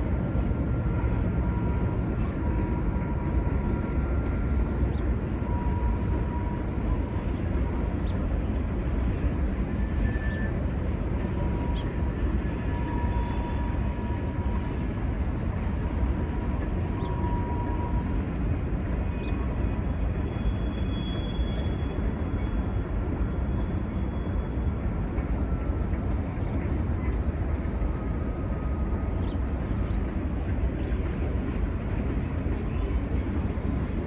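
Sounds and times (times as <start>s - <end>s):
freight train rumbling: 0.0s - 34.0s
faint high squeals: 9.7s - 10.7s, 20.2s - 24.7s.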